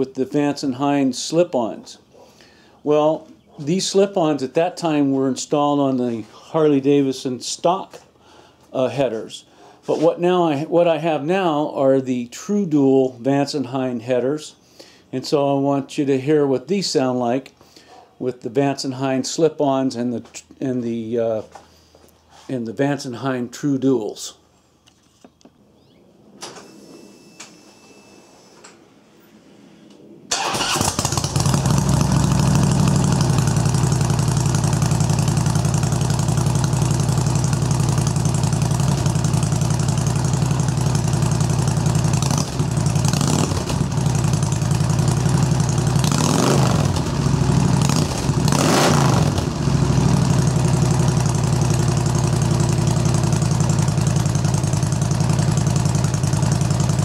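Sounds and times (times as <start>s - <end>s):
motorcycle engine revving: 30.3s - 57.0s
motorcycle engine idling: 30.4s - 57.0s.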